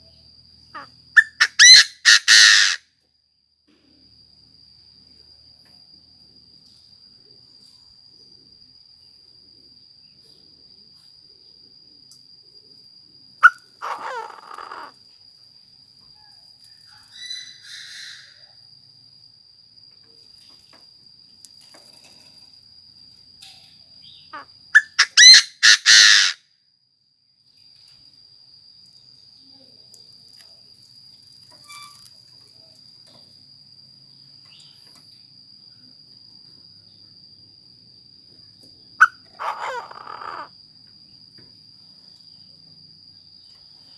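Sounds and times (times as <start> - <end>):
francolin calling: 0.0 - 2.8, 13.4 - 15.0, 16.2 - 18.6, 24.0 - 26.4, 39.0 - 40.6.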